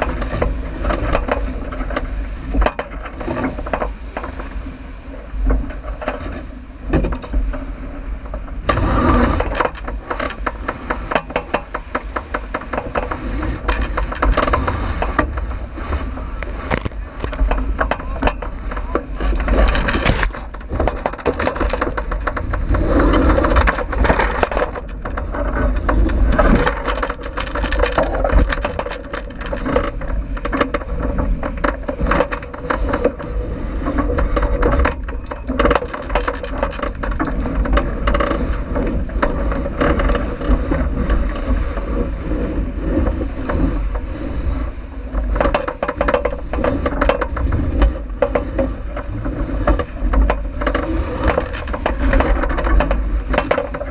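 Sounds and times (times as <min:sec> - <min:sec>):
water rushing along hull: 0:00.0 - 0:53.9
wind buffeting microphone: 0:00.0 - 0:53.9.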